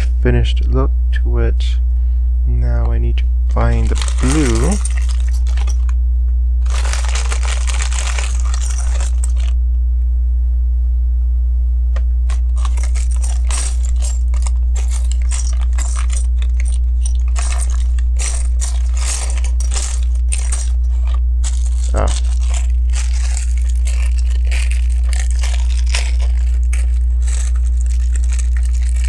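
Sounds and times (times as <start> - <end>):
electrical mains hum: 0.0 - 29.0
plastic pieces clicking and rattling: 3.5 - 5.9, 6.6 - 9.5, 12.3 - 29.0
rustling: 3.5 - 6.0, 6.6 - 9.6, 12.3 - 29.0.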